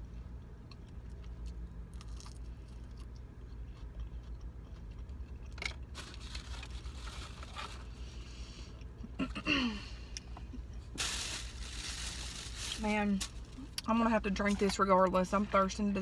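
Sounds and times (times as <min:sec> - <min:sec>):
chewing and crunching food: 0:00.0 - 0:09.2
steady low hum: 0:00.0 - 0:16.0.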